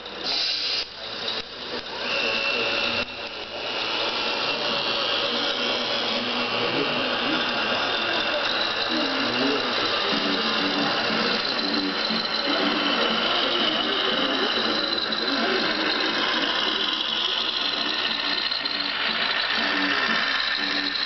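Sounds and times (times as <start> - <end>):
model truck motors whirring: 0.0 - 21.0
high whine: 1.0 - 21.0.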